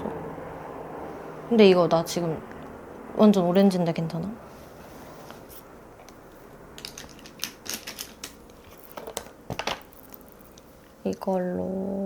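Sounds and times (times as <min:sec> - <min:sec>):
makeup cases and brushes clicking: 0:06.8 - 0:10.6.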